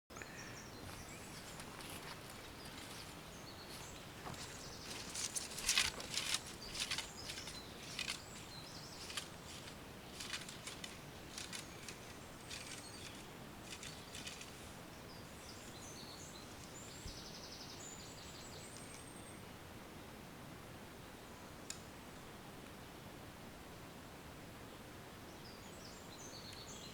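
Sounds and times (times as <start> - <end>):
high bird calls: 0.2 - 19.2
rustles and sharp snaps: 0.9 - 14.8
buzzy bird trill: 1.0 - 14.7.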